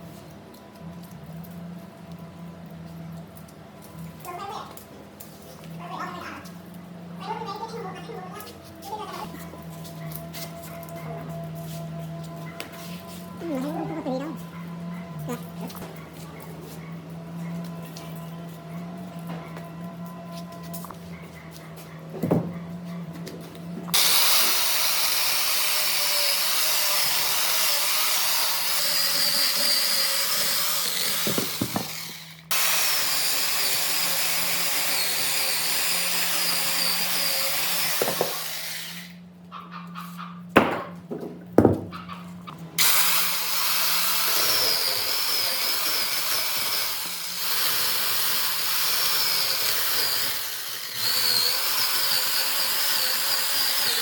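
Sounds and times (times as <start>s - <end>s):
power tool whining on wood: 23.6s - 39.3s, 42.3s - 54.0s
sharp knocks: 40.6s - 42.0s.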